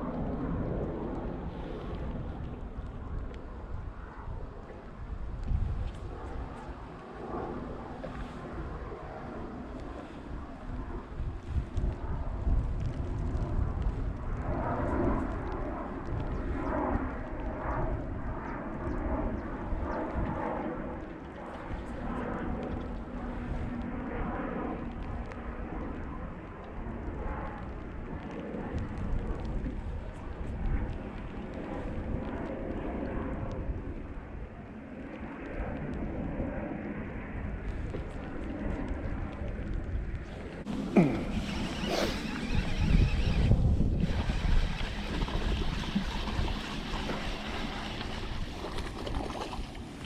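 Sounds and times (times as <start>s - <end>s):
wind buffeting microphone: 0.0s - 50.0s
water swishing and sloshing: 41.5s - 50.0s.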